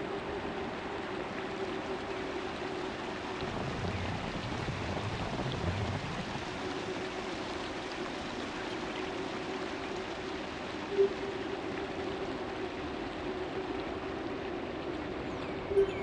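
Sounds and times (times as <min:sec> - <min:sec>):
rushing wind: 0:03.4 - 0:07.0.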